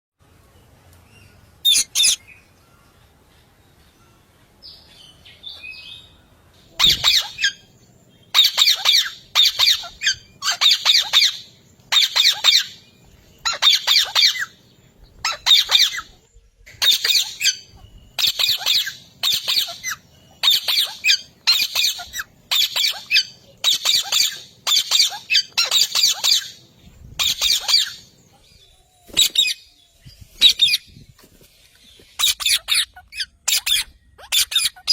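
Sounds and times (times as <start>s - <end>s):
parrot squawking: 1.6s - 2.2s, 6.8s - 7.7s, 8.3s - 12.8s, 13.4s - 14.6s, 15.2s - 16.1s, 16.8s - 26.6s, 27.2s - 28.1s, 32.2s - 34.9s.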